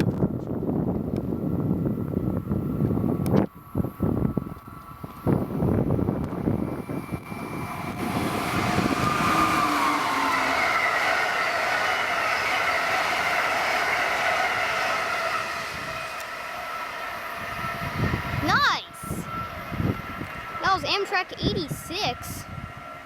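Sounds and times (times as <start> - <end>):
train wheel and rail rush: 0.0 - 23.0
high ringing whine: 2.1 - 23.0.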